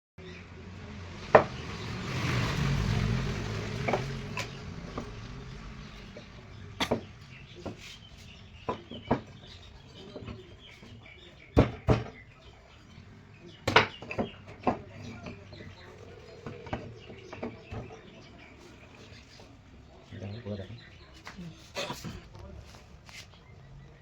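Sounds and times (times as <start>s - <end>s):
wooden parts knocking: 6.1s - 8.0s, 8.6s - 11.0s, 11.6s - 12.3s, 13.6s - 18.1s.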